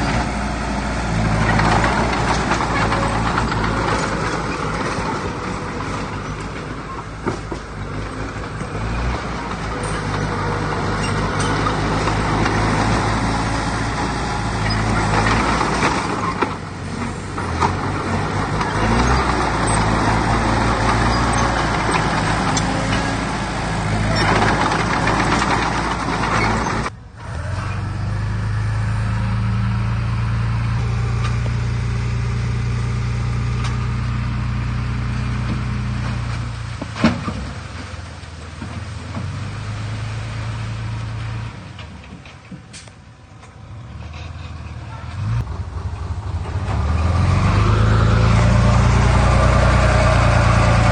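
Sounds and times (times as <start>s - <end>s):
heavy diesel engine labouring: 0.0s - 50.9s.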